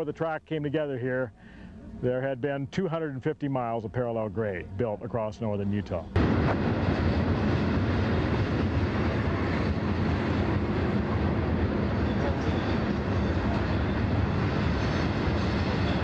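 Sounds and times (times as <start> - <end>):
freight train rolling past: 6.2 - 16.0.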